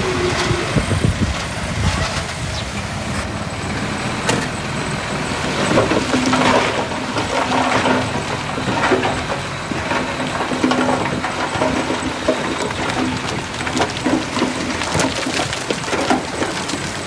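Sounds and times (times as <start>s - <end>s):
diesel machinery engine running: 0.0s - 10.5s.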